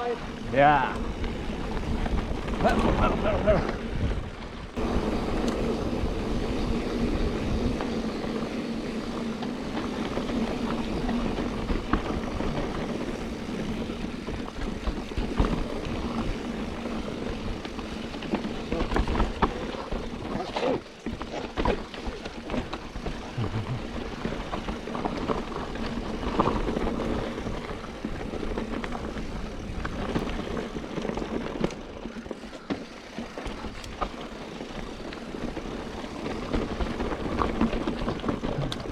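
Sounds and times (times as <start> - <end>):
wind and tyre noise: 0.0 - 38.9.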